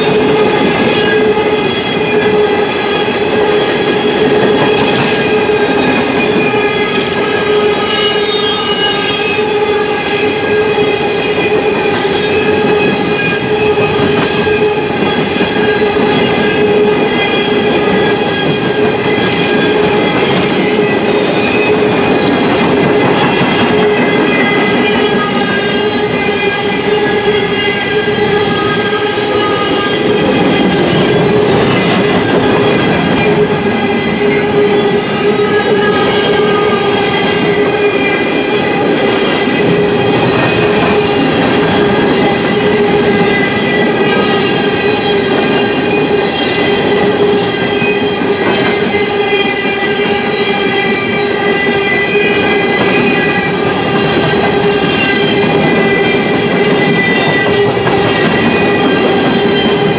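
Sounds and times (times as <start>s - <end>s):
steel train wheels rumbling on rail: 0.0s - 59.9s.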